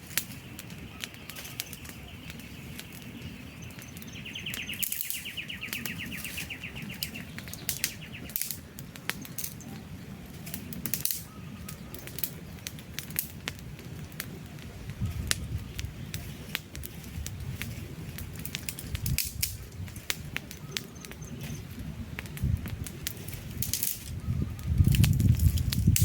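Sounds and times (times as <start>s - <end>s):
campfire crackling and popping: 0.0s - 26.0s
low rumble of flames: 0.0s - 26.0s
bird high trill: 0.9s - 8.4s.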